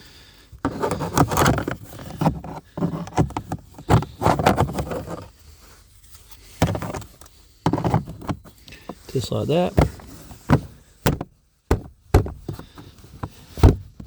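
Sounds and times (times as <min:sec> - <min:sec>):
plastic parts scraping and knocking: 0:00.6 - 0:05.4, 0:06.1 - 0:14.0.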